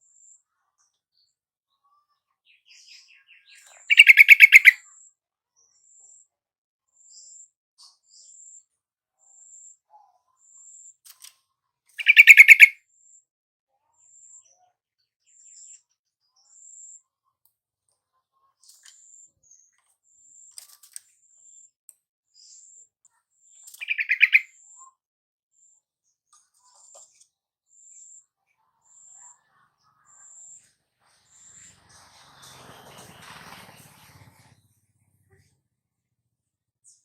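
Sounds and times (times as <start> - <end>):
bulbul chattering calls: 2.9 - 4.8, 12.0 - 12.8, 23.7 - 24.5
faint high-pitched bird notes: 12.0 - 12.7, 23.5 - 25.0.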